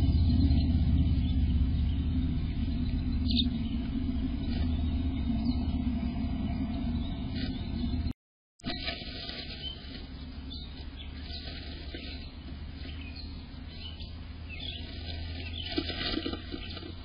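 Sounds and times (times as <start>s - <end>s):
faint swallow calls: 0.0s - 8.1s.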